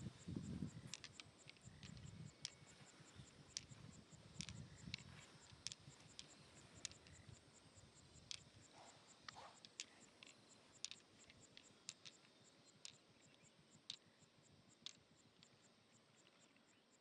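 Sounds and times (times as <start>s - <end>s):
faint insect chirping: 0.0s - 17.0s
light clicks: 0.7s - 7.4s, 8.2s - 14.1s.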